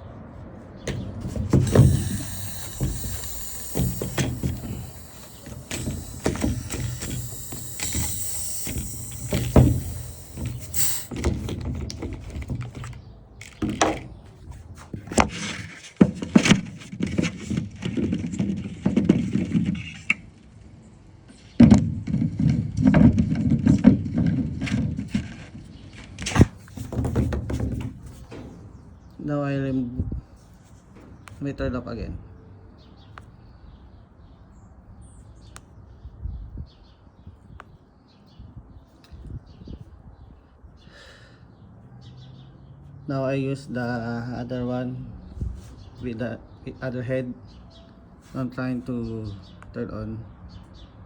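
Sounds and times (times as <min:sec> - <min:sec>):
steady hiss: 0:00.9 - 0:11.5.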